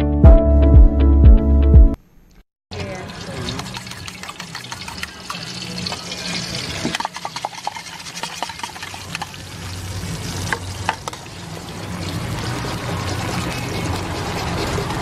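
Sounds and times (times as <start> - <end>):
background music: 0.0 - 2.0
egg sizzling in hot oil: 2.8 - 15.0
metal spatula scraping wok: 3.0 - 15.0.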